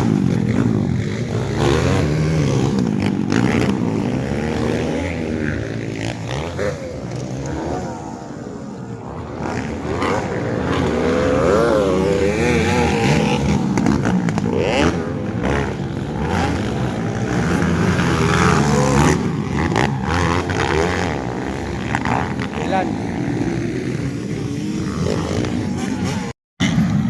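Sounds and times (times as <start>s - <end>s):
motorcycle engines revving hard: 0.0s - 27.0s.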